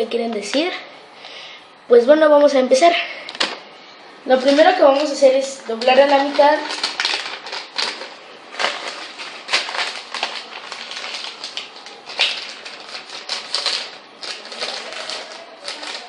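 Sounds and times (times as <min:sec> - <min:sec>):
paper rustling and crinkling: 0:03.3 - 0:03.6, 0:04.3 - 0:16.0.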